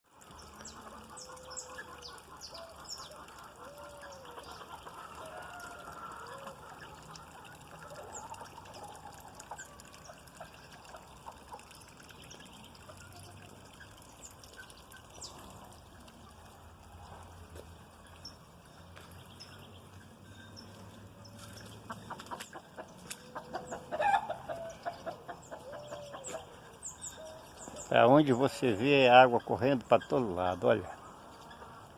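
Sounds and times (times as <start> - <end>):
running rainwater: 0.0 - 31.9
small birds chirping: 0.2 - 5.8, 9.1 - 31.9
drawn-out hen calls: 0.2 - 12.1, 19.5 - 31.9
chickens clucking: 0.3 - 11.8, 20.6 - 31.9.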